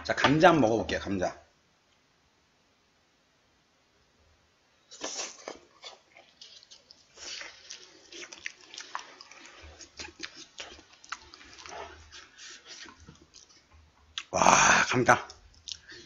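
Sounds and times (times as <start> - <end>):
wet chewing mouth sounds: 4.9 - 14.3, 15.2 - 16.0.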